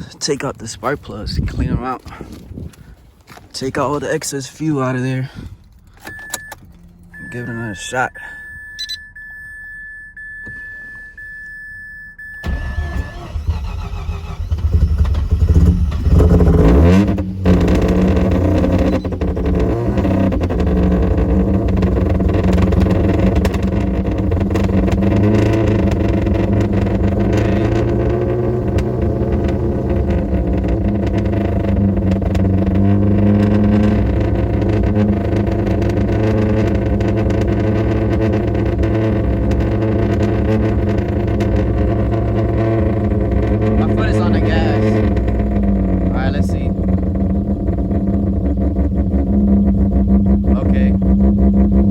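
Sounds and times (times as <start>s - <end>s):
high electronic tone: 6.1s - 14.4s
rotary engine starting and revving: 12.2s - 51.9s.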